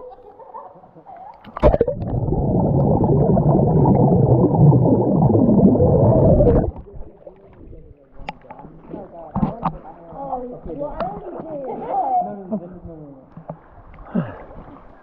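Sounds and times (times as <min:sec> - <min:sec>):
water splash: 0:01.5 - 0:08.0
underwater rushing and gurgling: 0:01.5 - 0:08.1.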